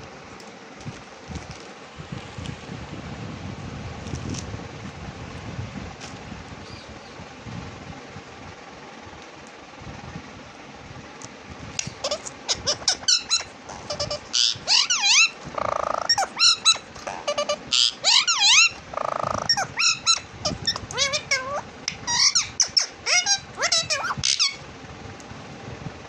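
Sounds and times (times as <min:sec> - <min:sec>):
parrot screeching: 0:11.9 - 0:24.6
parrot chirping and whistling: 0:12.0 - 0:24.6.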